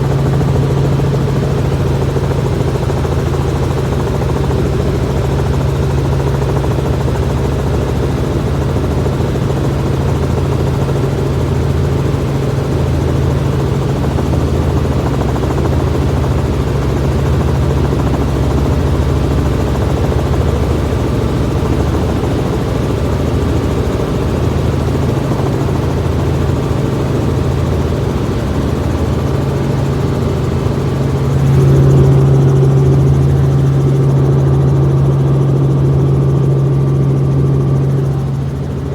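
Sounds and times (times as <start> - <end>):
helicopter drone: 0.0 - 38.9.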